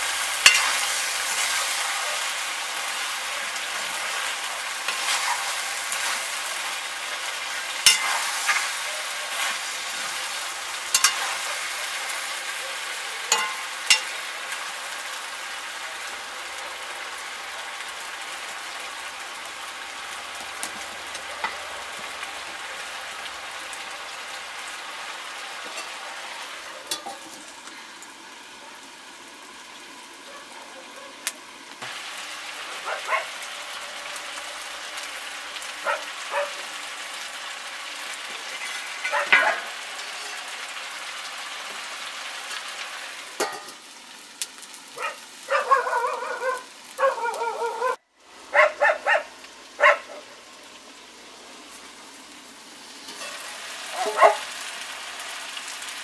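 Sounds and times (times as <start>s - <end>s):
chicken sizzling in a wok: 0.0s - 56.0s
dog yelping: 1.6s - 2.4s, 30.2s - 31.3s, 32.7s - 33.4s, 35.8s - 36.7s, 39.0s - 39.8s, 45.0s - 50.3s, 53.9s - 54.5s.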